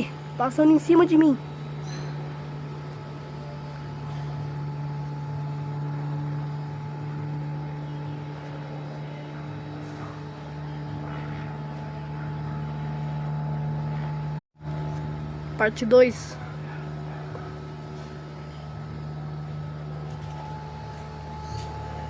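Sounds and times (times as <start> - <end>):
airplane engine drone: 0.0 - 22.0.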